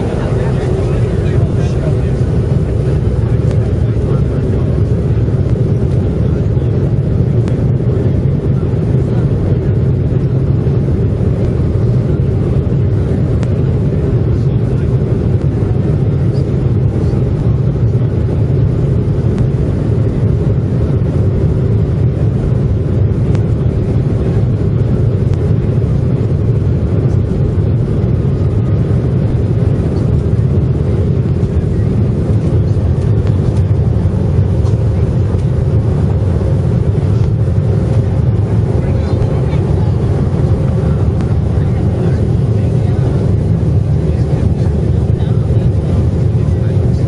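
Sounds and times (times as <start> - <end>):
rushing air: 0.0 - 3.8
jet engines rumbling: 0.0 - 47.0.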